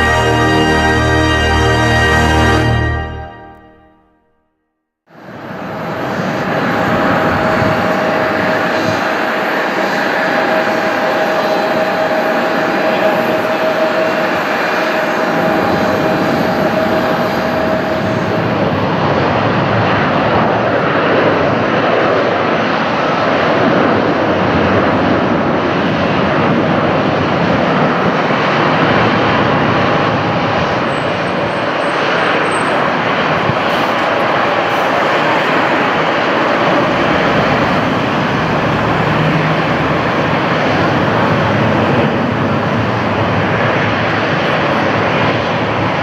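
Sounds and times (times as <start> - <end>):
jet engines roaring: 0.0 - 3.8, 5.2 - 46.0
whining tone: 0.0 - 4.6, 5.2 - 20.8.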